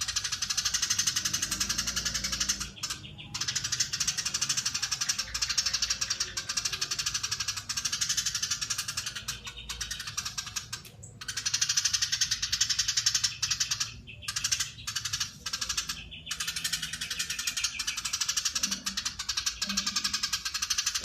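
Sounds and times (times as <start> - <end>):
sparrow chattering: 0.0 - 21.0.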